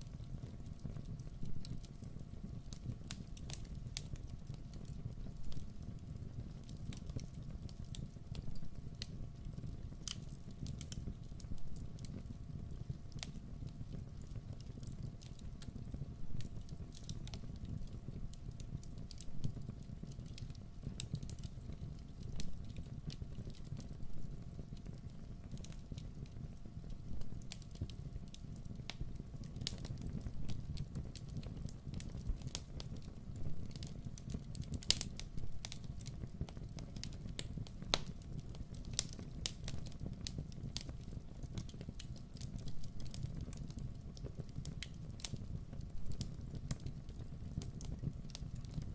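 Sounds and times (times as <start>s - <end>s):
fire crackling and popping: 0.0s - 48.9s
low rumble of flames: 0.0s - 48.9s.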